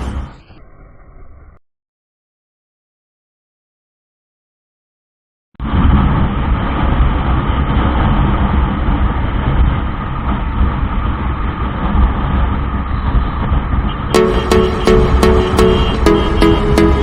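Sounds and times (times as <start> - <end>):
wind noise: 5.6 - 13.9.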